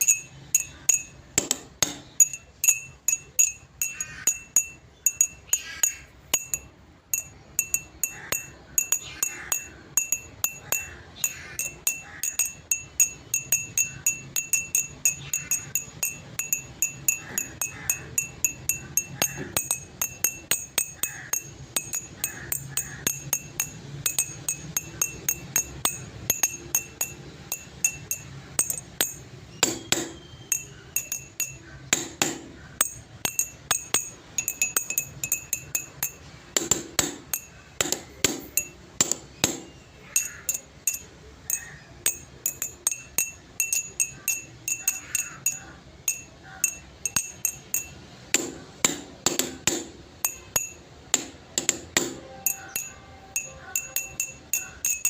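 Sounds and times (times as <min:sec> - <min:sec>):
glassy clinks: 0:00.0 - 0:55.0.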